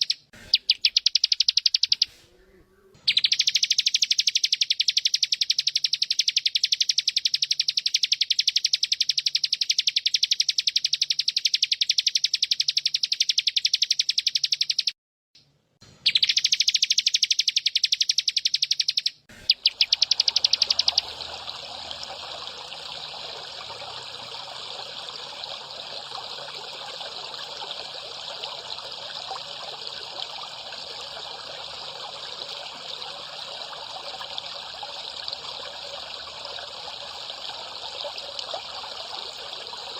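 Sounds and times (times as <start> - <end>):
trickle of running water: 3.2 - 14.6, 19.5 - 39.9
cicada buzzing: 18.3 - 39.9.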